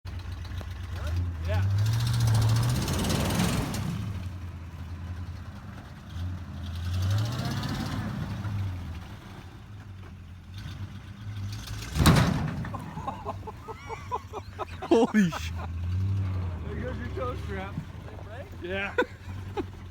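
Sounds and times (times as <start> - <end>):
truck engine revving: 1.1 - 4.4, 10.6 - 19.9.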